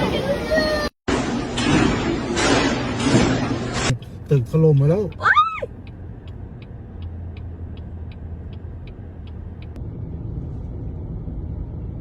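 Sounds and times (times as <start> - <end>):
steady low rumble: 1.1 - 12.0
faint regular ticking: 4.0 - 9.8.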